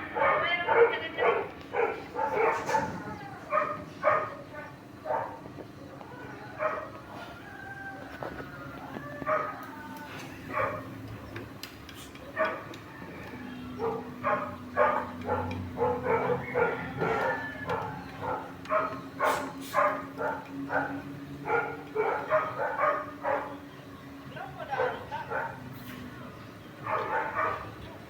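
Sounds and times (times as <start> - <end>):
dog barking: 0.1 - 5.5, 6.5 - 7.0, 9.2 - 9.6, 10.5 - 10.9, 12.3 - 12.7, 13.8 - 23.6, 24.7 - 25.7, 26.8 - 27.8.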